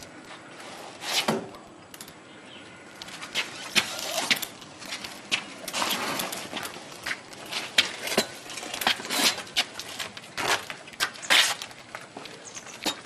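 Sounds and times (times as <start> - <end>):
scuffing footsteps: 6.4 - 13.0.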